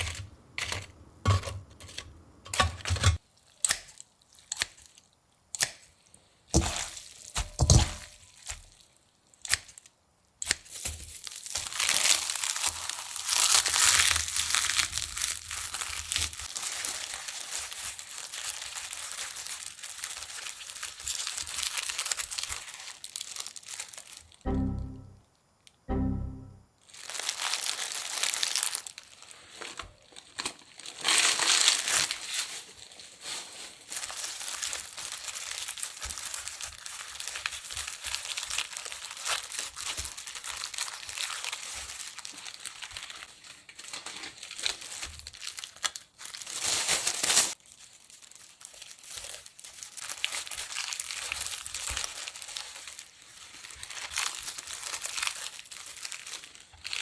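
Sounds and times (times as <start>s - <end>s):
crinkling crackling noise: 10.7s - 25.1s, 27.0s - 57.0s.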